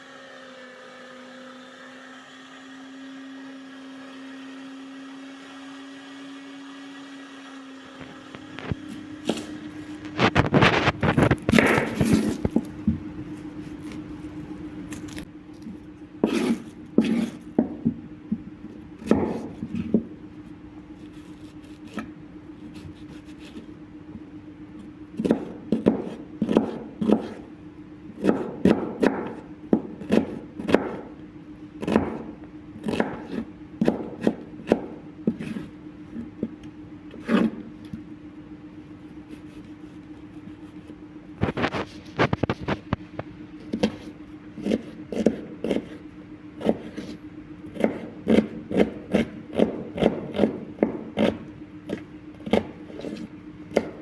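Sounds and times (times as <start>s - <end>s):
steady low hum: 7.8s - 54.0s
knocks and scrapes of food preparation: 8.0s - 23.7s, 25.2s - 27.5s, 31.8s - 38.1s, 39.2s - 47.2s, 47.8s - 54.0s.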